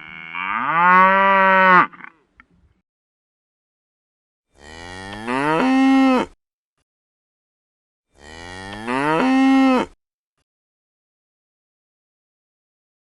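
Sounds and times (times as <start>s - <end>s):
cow mooing: 0.0s - 2.2s, 4.6s - 6.4s, 8.2s - 10.0s.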